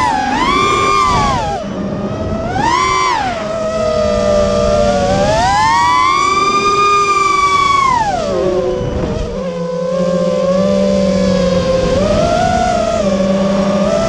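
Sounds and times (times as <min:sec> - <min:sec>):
drone propellers whining: 0:00.0 - 0:14.0.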